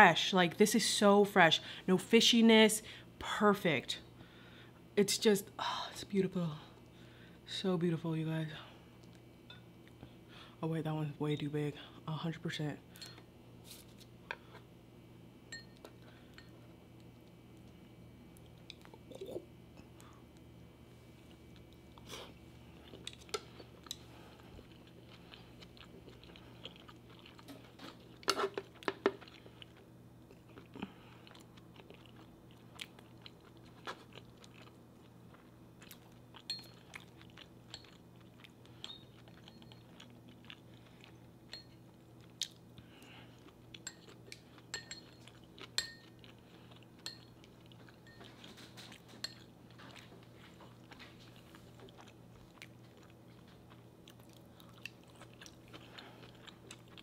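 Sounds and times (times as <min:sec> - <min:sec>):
person chewing sushi: 0:21.2 - 0:57.0.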